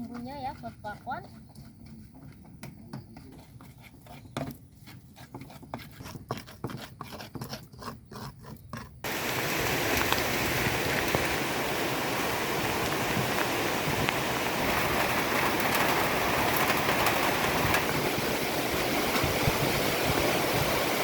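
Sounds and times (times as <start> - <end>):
pestle grinding in a mortar: 0.0 - 9.1
heavy rain: 9.1 - 21.0.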